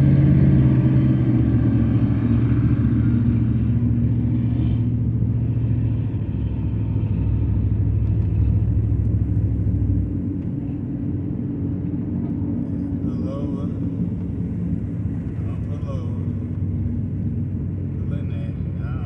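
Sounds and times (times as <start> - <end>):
deep engine rumble: 0.0 - 19.0
pickup engine humming: 0.0 - 19.0.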